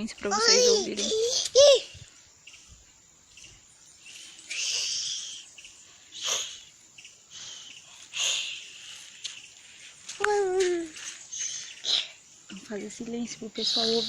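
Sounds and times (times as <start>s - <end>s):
high-pitched bird calls: 0.4s - 9.6s, 10.3s - 12.7s, 13.6s - 14.0s.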